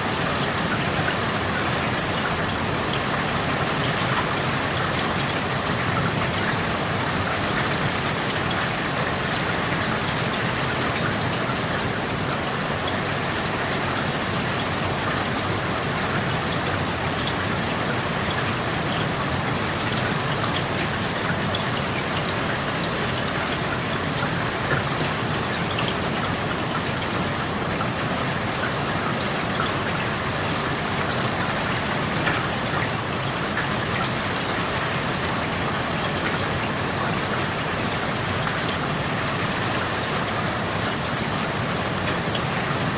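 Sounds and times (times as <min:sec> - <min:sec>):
steady rain hiss: 0:00.0 - 0:42.9
water drips ticking: 0:16.1 - 0:38.9.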